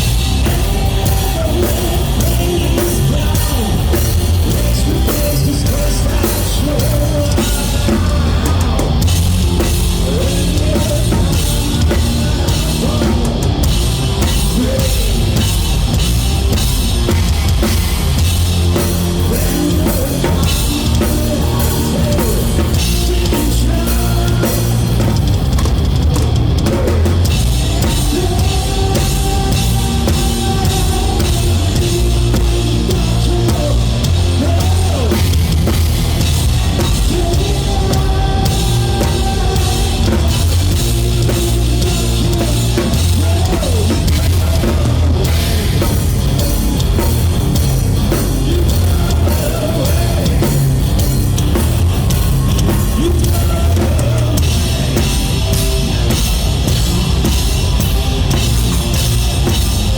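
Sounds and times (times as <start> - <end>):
drum kit kick and cymbals: 0.0 - 59.9
rock band playing: 0.0 - 59.9.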